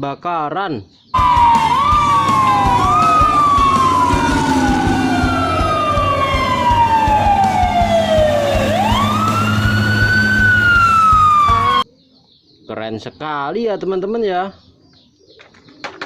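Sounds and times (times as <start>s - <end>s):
second siren tone: 1.2s - 11.8s
toy siren wailing: 1.2s - 11.9s.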